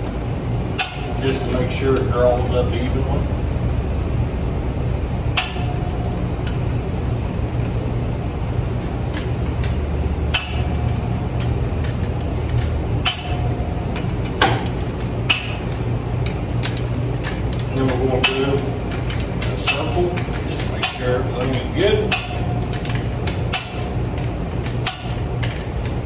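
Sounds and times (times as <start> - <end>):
steady low hum: 0.0 - 26.0
torque wrench clicking: 0.8 - 2.1, 9.1 - 26.0.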